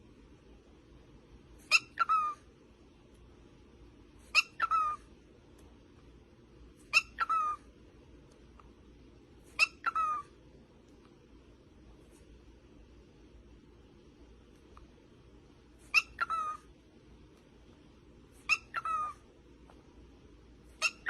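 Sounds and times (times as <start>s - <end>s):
parrot calling: 1.6s - 2.5s, 4.3s - 5.2s, 6.8s - 7.8s, 9.5s - 10.4s, 15.8s - 16.7s, 18.4s - 19.3s, 20.8s - 21.0s.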